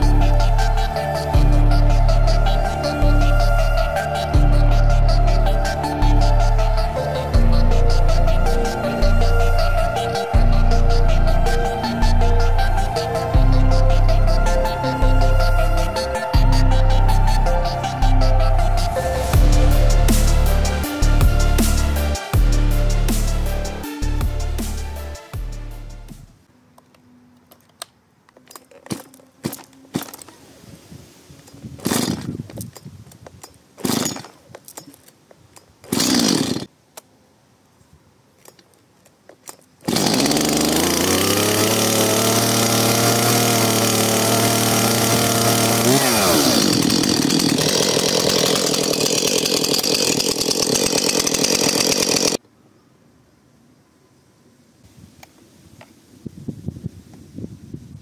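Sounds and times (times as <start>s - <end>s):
chainsaw engine running: 0.0s - 26.2s, 31.8s - 32.3s, 33.8s - 34.3s, 35.9s - 36.7s, 39.8s - 52.4s
chainsaw starter cord tugs: 27.5s - 30.4s, 31.4s - 36.7s, 38.4s - 52.4s.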